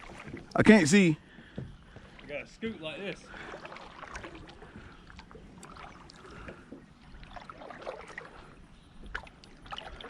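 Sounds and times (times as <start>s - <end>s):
water splashing and dripping: 3.2s - 10.0s.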